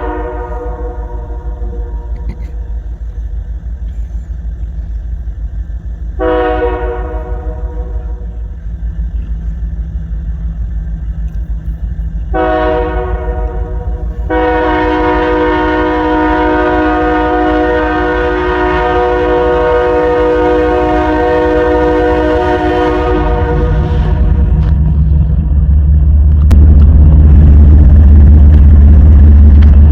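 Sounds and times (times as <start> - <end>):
locomotive air horn blasts: 0.0 - 2.9, 6.2 - 8.4, 12.3 - 24.8
train rumble: 0.0 - 29.9.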